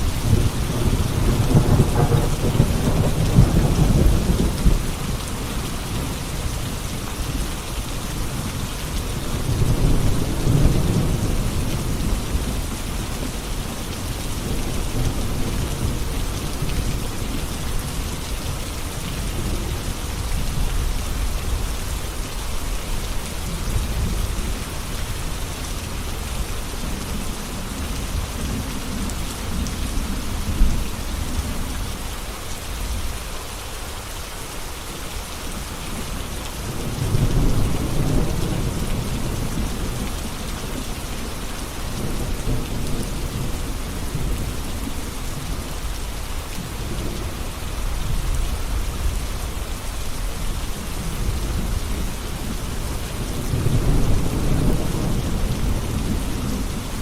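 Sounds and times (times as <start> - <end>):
thunder rumbling: 0.0 - 6.1, 50.4 - 57.0
heavy rain: 0.0 - 57.0.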